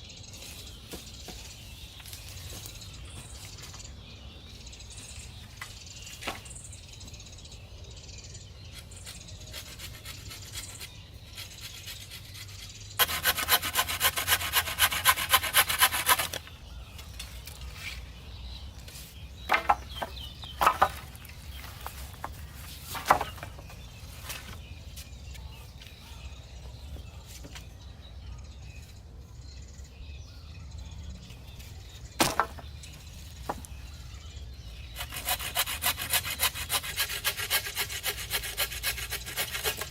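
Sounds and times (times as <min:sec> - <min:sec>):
hand saw cutting wood: 0:08.7 - 0:16.5, 0:34.9 - 0:39.9
wooden knocks: 0:19.5 - 0:21.2, 0:23.0 - 0:23.7.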